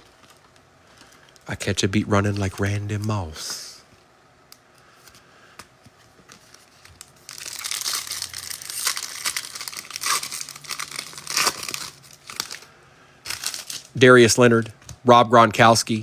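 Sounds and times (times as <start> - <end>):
wrapper tearing and crinkling: 6.3 - 14.0.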